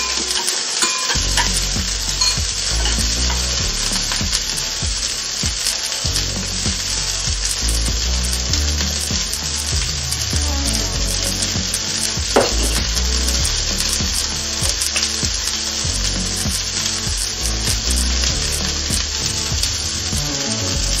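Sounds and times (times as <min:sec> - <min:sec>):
vegetables sizzling in oil: 0:00.0 - 0:21.0
sharp knock: 0:12.4 - 0:13.0.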